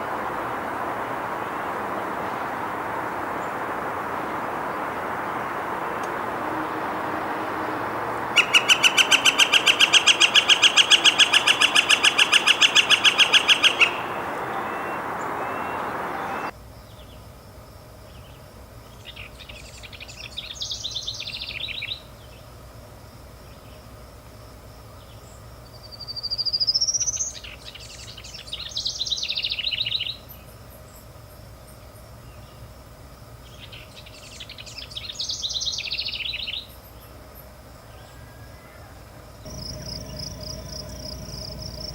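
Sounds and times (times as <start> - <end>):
bird call phrases: 0.0 - 16.5
rising bird whistle: 0.0 - 16.5
woodpecker rapid call: 0.0 - 16.5.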